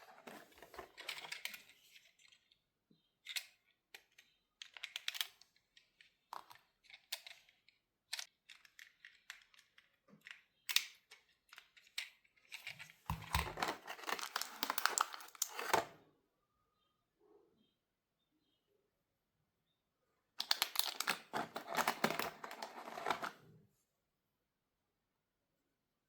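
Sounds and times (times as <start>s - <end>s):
packaging rustling and crinkling: 0.0s - 1.9s, 12.7s - 15.9s, 20.4s - 23.4s
packaging clicks and taps: 3.3s - 15.9s, 20.4s - 23.4s.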